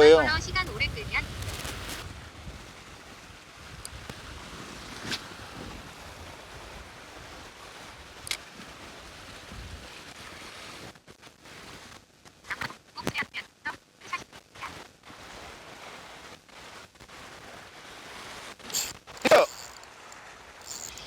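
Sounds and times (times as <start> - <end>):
wind on microphone: 0.0 - 10.0
sea surf: 0.0 - 10.8
sharp clicks: 18.7 - 21.0.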